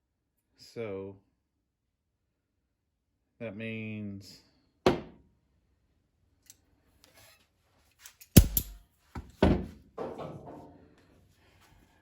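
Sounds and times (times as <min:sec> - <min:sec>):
metal parts knocking and clanking: 0:08.1 - 0:08.8.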